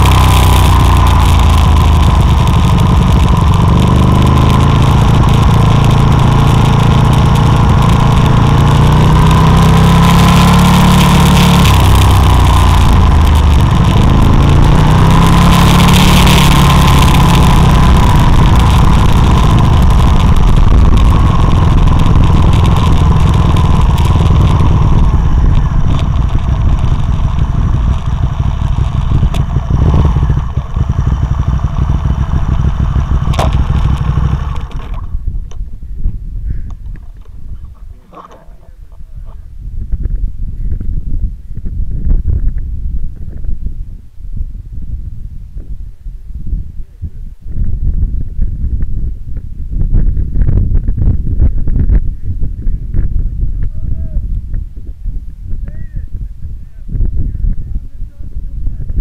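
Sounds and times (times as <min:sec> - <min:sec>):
racing motorcycle engine revving: 0:00.0 - 0:35.3, 0:36.9 - 0:39.4.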